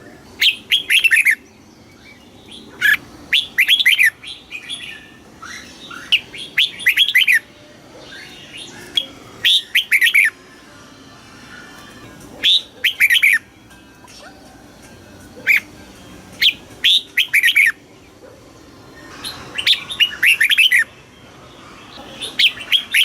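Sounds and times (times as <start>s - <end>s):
bird singing whistled phrases: 0.4s - 10.4s, 12.4s - 13.4s, 16.4s - 17.8s, 19.0s - 21.0s, 22.0s - 23.0s.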